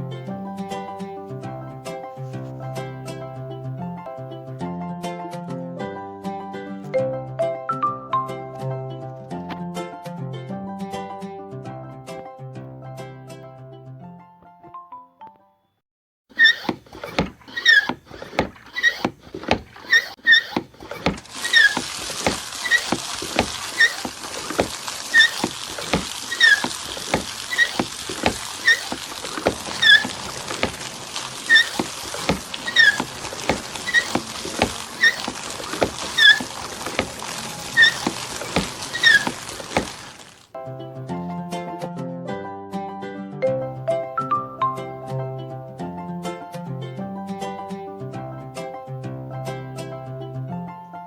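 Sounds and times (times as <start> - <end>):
hand water pump clanking: 16.3 - 40.5
pump squeak: 16.3 - 40.5
water rushing: 16.4 - 40.5.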